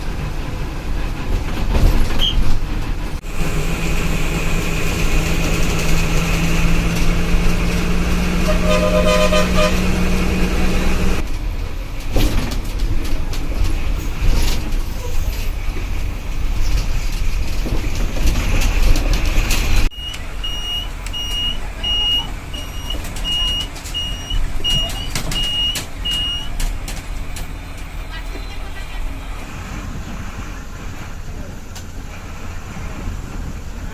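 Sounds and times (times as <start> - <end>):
rattles and knocks: 0.0 - 3.2, 11.2 - 19.9
bus engine and road rumble: 0.0 - 33.9
horn blast: 8.2 - 11.2
high electronic beep: 20.0 - 26.5.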